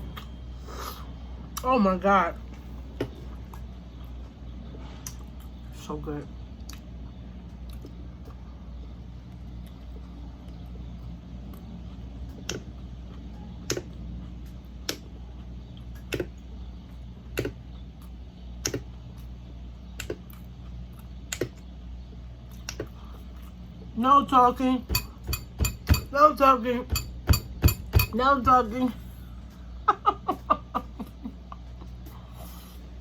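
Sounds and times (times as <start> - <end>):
steady low hum: 0.0 - 33.0
person chewing crunchy food: 9.2 - 23.9.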